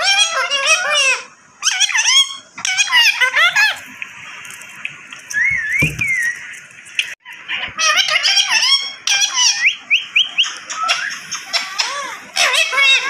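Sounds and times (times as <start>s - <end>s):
parrot calling: 0.0s - 3.9s, 7.2s - 13.0s.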